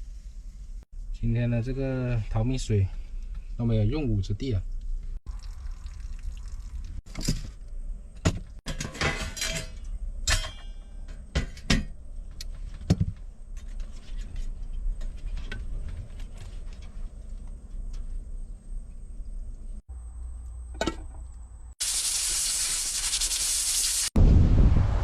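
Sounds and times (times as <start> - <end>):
cookware clinking and clattering: 8.7 - 11.9.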